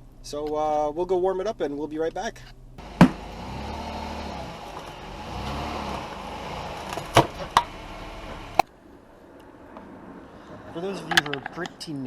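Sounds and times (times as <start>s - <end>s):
car engine running: 2.8s - 8.7s.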